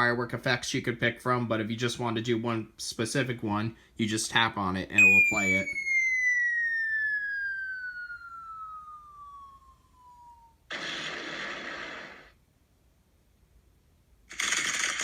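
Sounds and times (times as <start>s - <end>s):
falling firework whistle: 5.0s - 12.4s
firecracker crackling: 10.7s - 12.4s, 14.3s - 15.0s
firework explosion: 10.7s - 12.4s.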